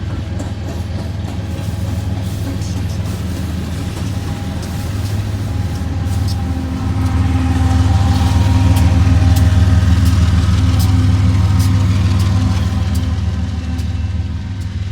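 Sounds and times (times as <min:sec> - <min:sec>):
diesel locomotive engine drone: 0:00.0 - 0:14.9
wheels clicking over rail joints: 0:00.0 - 0:14.9.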